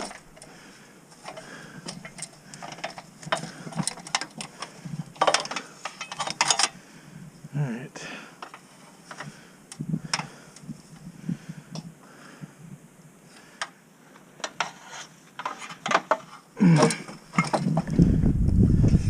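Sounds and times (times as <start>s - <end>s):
low rumble: 17.8s - 19.0s.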